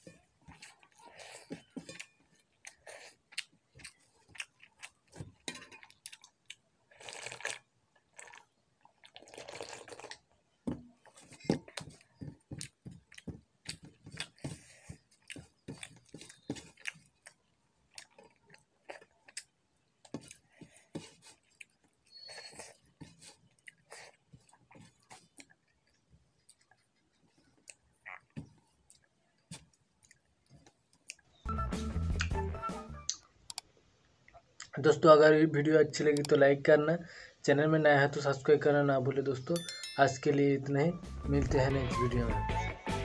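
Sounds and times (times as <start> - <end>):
wet chewing and lip smacks: 0.1 - 10.4, 11.0 - 31.4.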